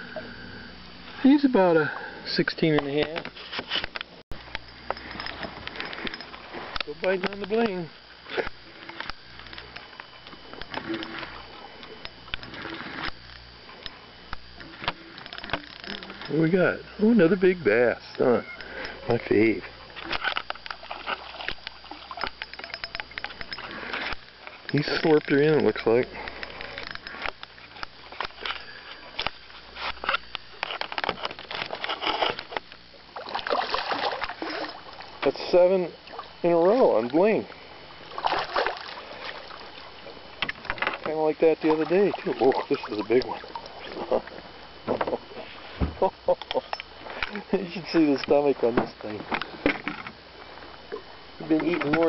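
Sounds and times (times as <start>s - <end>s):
handling fish in a boat: 1.0s - 52.0s
fishing reel clicking: 4.4s - 16.5s, 18.0s - 31.1s.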